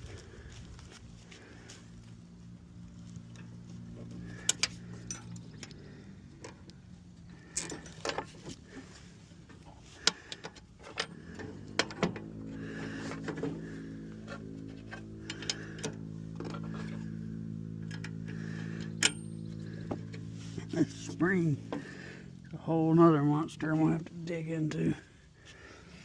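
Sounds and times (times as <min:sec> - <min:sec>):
steady low hum: 0:00.0 - 0:26.0
metal clinks and knocks: 0:04.4 - 0:05.8, 0:07.5 - 0:08.5.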